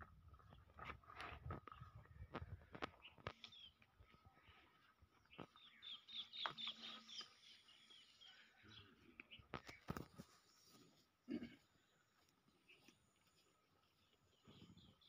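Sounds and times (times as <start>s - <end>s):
small birds chirping: 0.3s - 15.0s
soft clicks and rustles: 9.3s - 11.0s.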